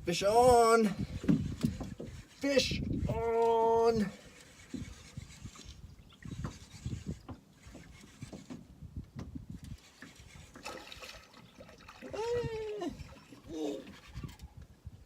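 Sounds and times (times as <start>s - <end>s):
low knocks and rubbing: 1.1s - 3.1s, 4.3s - 10.7s.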